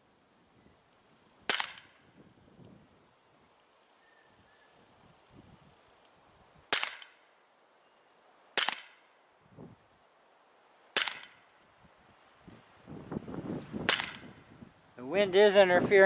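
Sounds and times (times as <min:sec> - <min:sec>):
bb pistol shots: 0:01.5 - 0:02.0, 0:06.7 - 0:07.2, 0:08.6 - 0:09.0, 0:11.0 - 0:11.4, 0:13.9 - 0:14.3.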